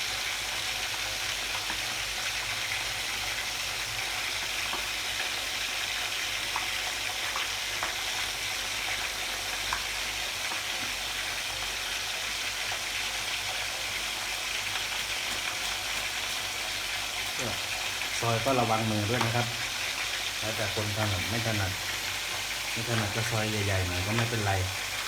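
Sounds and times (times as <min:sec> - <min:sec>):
meat sizzling in hot oil: 0:00.0 - 0:25.0.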